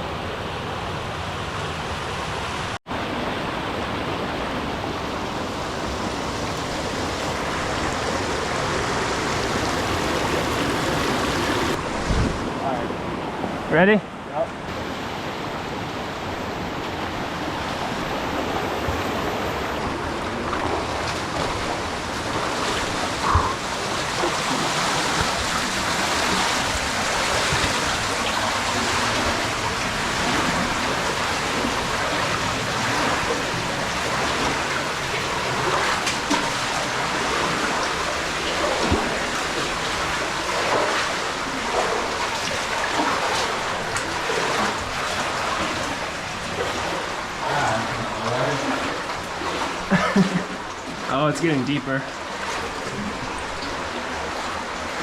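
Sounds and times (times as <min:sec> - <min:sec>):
water rushing through cave: 0:00.0 - 0:13.7, 0:14.7 - 0:55.0
knocks or splashes: 0:19.8 - 0:55.0.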